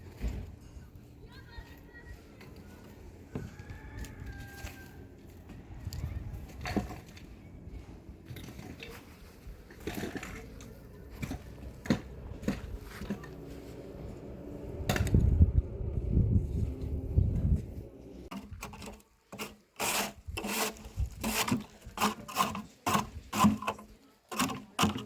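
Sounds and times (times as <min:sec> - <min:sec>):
low thuds and rumbling: 0:14.6 - 0:18.0.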